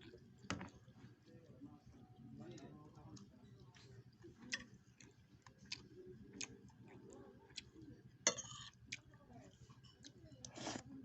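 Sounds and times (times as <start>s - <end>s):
person chewing: 5.0s - 7.7s.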